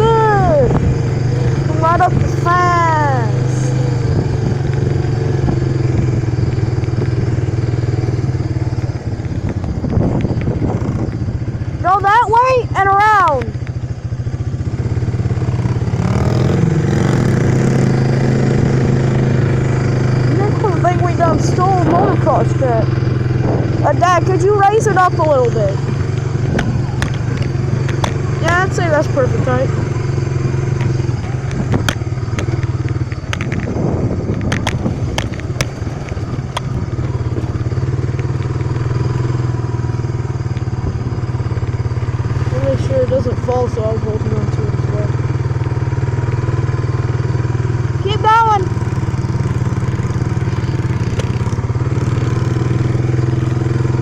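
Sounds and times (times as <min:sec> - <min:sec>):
off-road vehicle engine running: 0:00.0 - 0:54.0
clattering knocks over bumps: 0:25.4 - 0:28.9.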